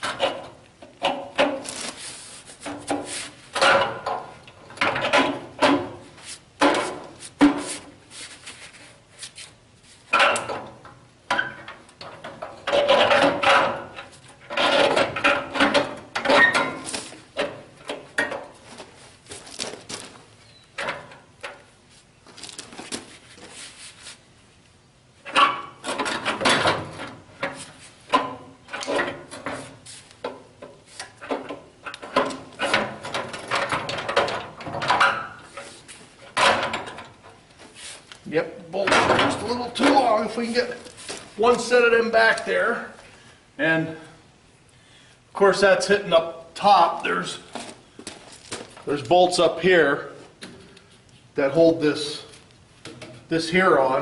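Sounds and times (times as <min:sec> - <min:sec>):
metal scraping and knocking: 0:02.6 - 0:07.9, 0:10.1 - 0:18.6, 0:25.2 - 0:37.4.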